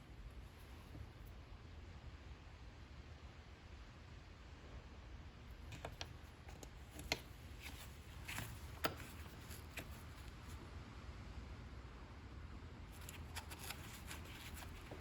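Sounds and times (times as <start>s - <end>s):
low steady hum: 0.0s - 15.0s
light clicks and taps: 5.6s - 10.4s.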